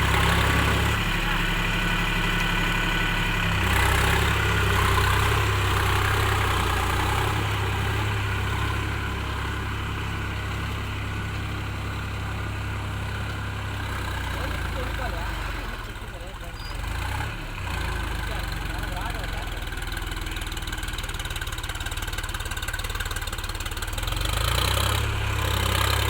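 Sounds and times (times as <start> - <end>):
diesel tractor engine running: 0.0 - 26.0.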